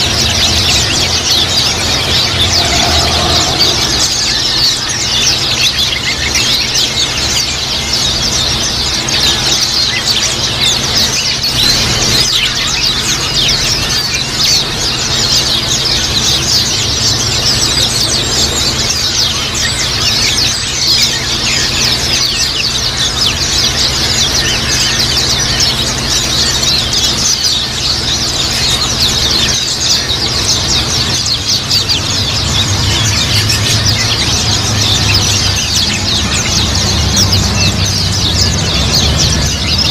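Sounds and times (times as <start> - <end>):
low hum: 0.0 - 8.8
birds chattering: 0.0 - 39.9.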